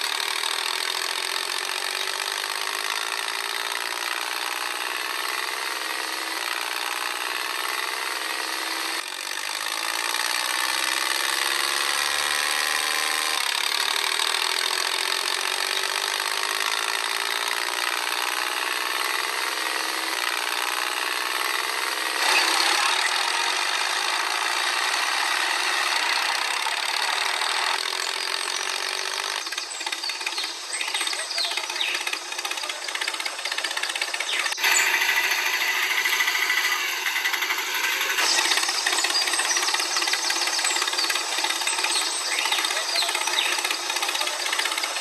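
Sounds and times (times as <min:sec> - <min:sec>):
small electric motor whirring: 0:18.2 - 0:45.0.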